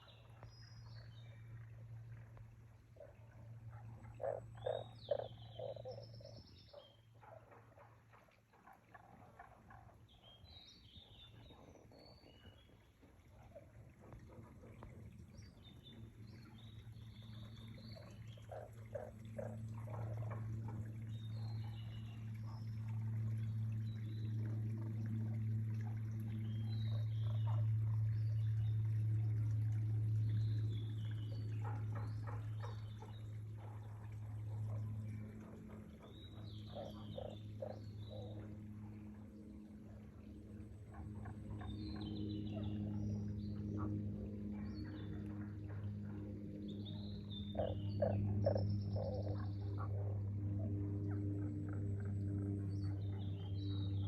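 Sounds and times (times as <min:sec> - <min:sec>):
steady low drone: 0:00.0 - 0:07.3, 0:08.7 - 0:54.0
frogs croaking: 0:00.0 - 0:54.0
small birds chirping: 0:04.0 - 0:07.6, 0:36.0 - 0:38.5, 0:46.9 - 0:50.1.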